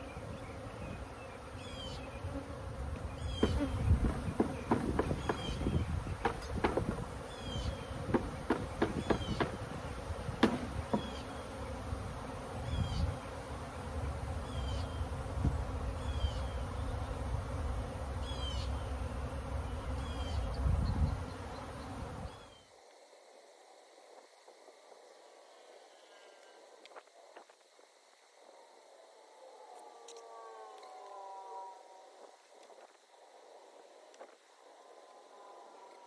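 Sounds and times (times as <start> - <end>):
honey bees buzzing: 0.0 - 22.6
sharp knocks and clicks: 3.4 - 7.1, 8.1 - 9.8, 10.4 - 11.2.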